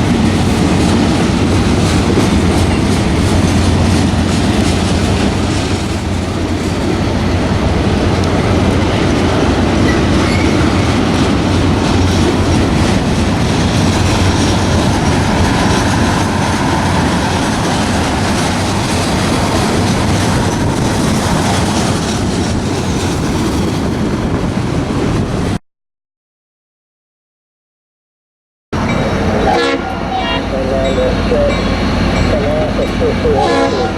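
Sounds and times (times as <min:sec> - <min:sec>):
wheel clatter on rail joints: 0:00.0 - 0:24.3
railroad cars rumbling: 0:00.0 - 0:25.6, 0:28.8 - 0:33.9.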